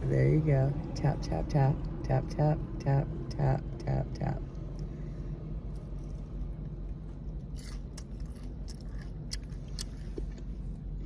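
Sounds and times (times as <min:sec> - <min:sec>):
steady low hum: 0:00.0 - 0:11.0
crunchy chewing: 0:05.7 - 0:11.0.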